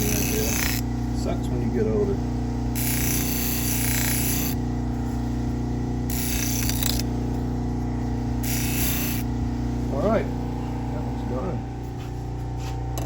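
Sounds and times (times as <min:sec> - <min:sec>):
knife edge hissing on wheel: 0:00.0 - 0:00.8, 0:02.8 - 0:04.6, 0:06.1 - 0:07.0, 0:08.4 - 0:09.3
deburring wheel motor hum: 0:00.0 - 0:13.0.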